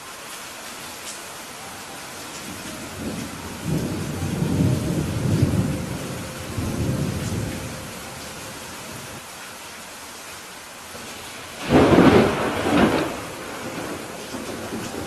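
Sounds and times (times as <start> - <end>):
heavy rain: 0.0 - 15.0
thunder rumbling: 2.0 - 9.2, 11.5 - 15.0.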